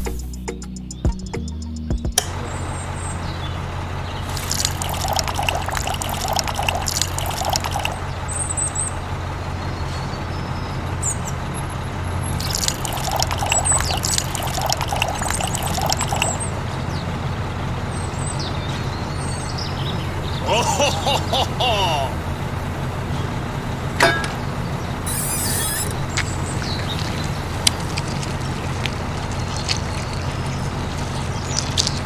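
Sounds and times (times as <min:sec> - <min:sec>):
liquid pouring and trickling: 0:04.2 - 0:08.1, 0:12.3 - 0:16.5, 0:25.1 - 0:32.0.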